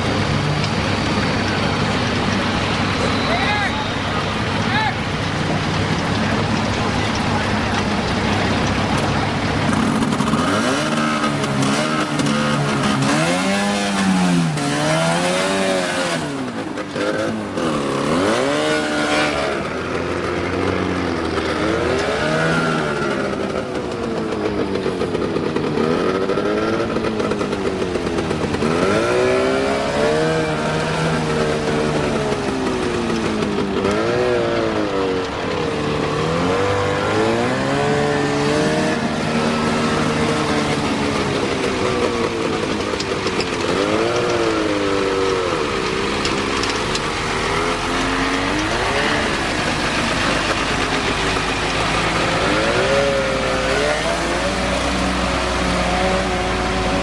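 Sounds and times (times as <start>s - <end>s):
vehicle engine revving: 0.0s - 57.0s.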